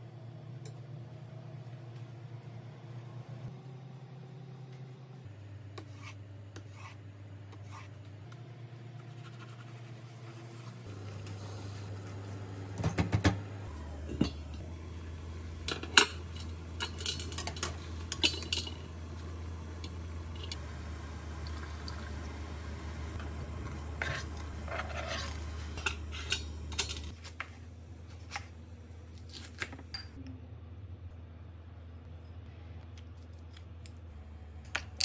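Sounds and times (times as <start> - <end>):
steady low hum: 0.0 - 35.0
metal pot and utensils clinking: 15.6 - 18.9, 25.8 - 27.1.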